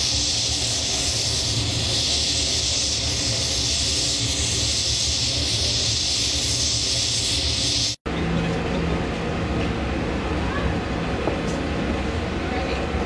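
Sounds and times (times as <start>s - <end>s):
steam hissing: 0.0s - 8.0s.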